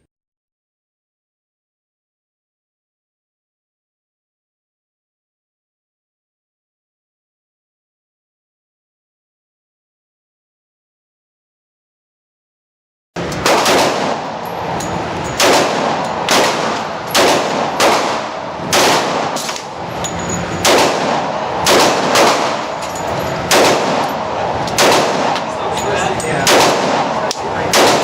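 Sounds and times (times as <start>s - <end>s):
pistol shots: 13.4s - 19.8s, 20.5s - 25.5s, 26.4s - 28.0s.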